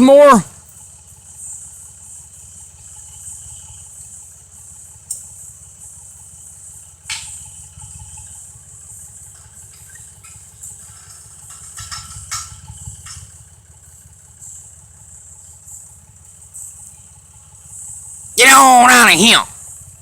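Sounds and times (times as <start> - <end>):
tractor engine idling: 0.0 - 20.0.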